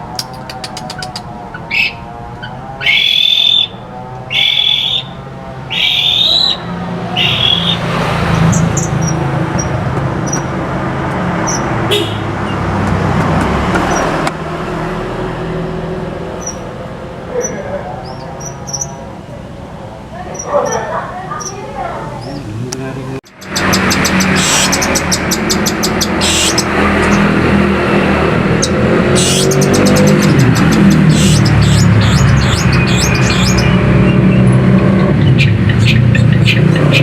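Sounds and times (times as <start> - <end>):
bird singing whistled phrases: 0.2 - 7.8.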